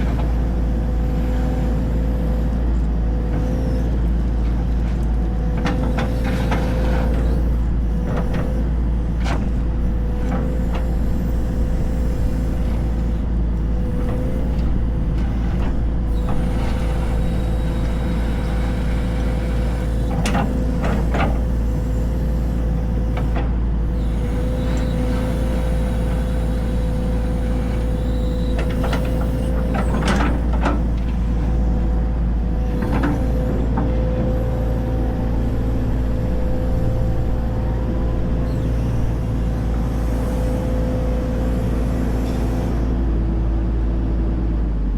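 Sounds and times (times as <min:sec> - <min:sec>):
diesel machinery engine drone: 0:00.0 - 0:44.9.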